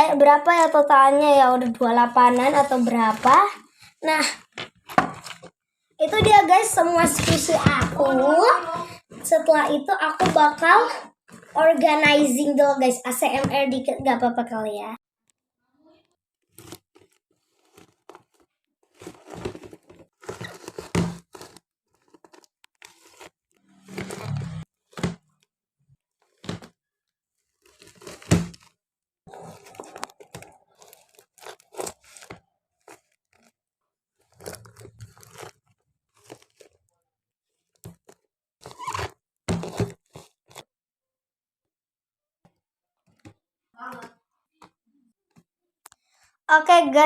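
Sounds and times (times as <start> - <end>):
paper and plastic crinkling: 1.5 - 5.5, 16.5 - 25.0, 27.4 - 33.6, 34.2 - 36.9, 37.6 - 40.7.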